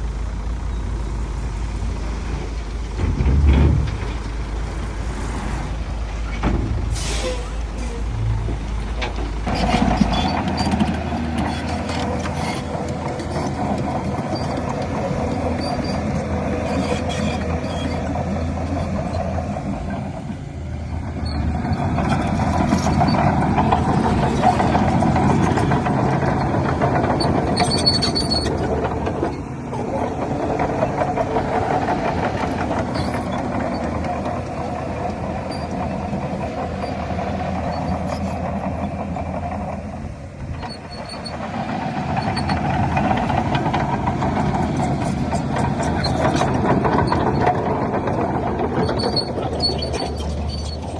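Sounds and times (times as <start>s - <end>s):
heavy machinery diesel engines: 0.0s - 50.9s.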